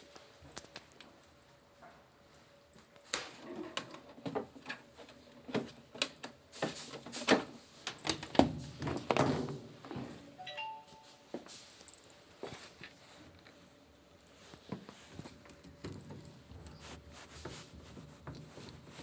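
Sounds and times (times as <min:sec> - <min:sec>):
short electronic beep: 0:10.4 - 0:11.2.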